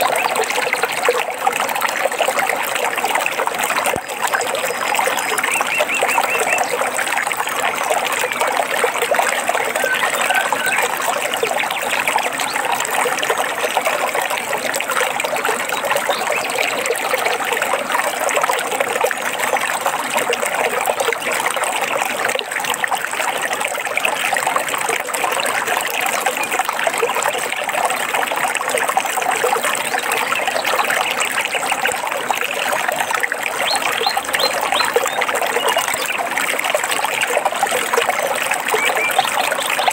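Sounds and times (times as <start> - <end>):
stream trickling: 0.0 - 39.9
faint bird chirps: 9.7 - 11.0.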